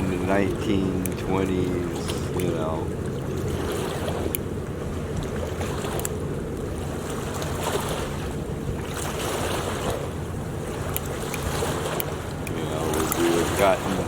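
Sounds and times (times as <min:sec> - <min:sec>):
surf: 0:00.0 - 0:14.0
wind: 0:00.0 - 0:14.0
faint clicks: 0:01.0 - 0:01.2.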